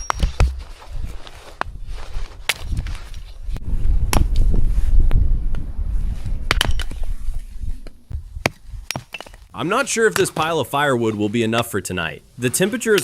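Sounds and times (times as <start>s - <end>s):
wind buffeting microphone: 0.2s - 8.9s.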